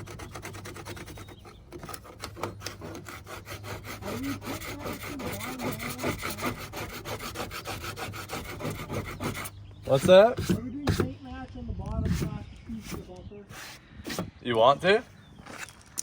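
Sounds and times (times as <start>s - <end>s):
abrasive scraping body filler: 12.0s - 15.7s.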